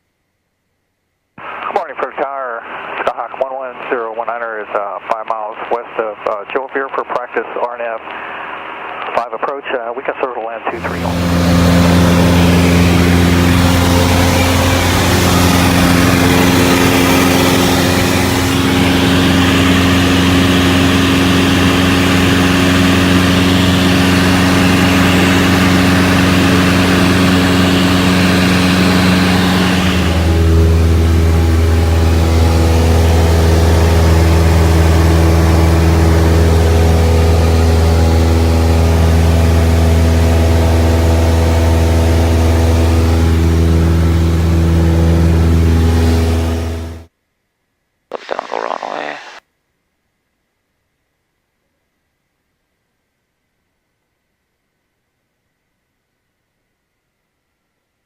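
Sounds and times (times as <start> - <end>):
plane engine and propeller droning: 1.6 - 47.1.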